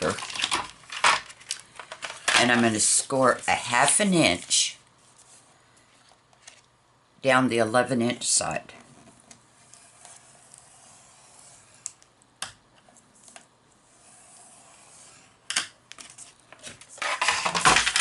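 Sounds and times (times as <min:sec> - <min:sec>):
scratchy paper scraping: 0:09.6 - 0:12.0, 0:13.0 - 0:15.4.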